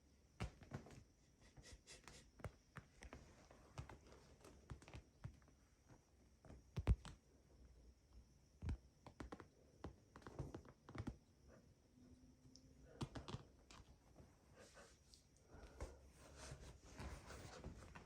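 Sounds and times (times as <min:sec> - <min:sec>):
cat paws tapping on floor: 0:02.4 - 0:07.2.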